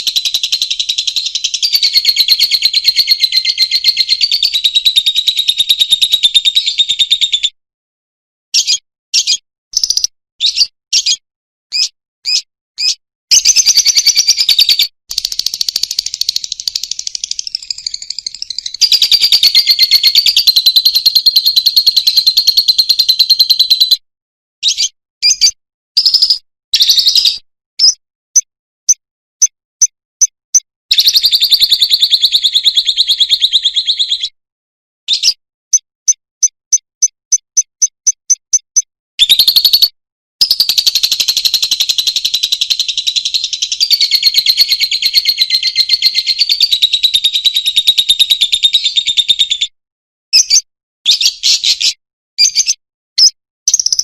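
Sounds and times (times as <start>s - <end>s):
lovebird short sharp chirps: 8.6s - 14.8s.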